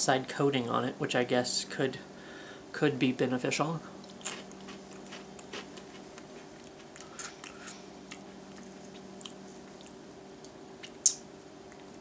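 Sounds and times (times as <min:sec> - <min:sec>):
steady low hum: 0:00.0 - 0:12.0
person crunching crispy cereal: 0:04.2 - 0:07.8.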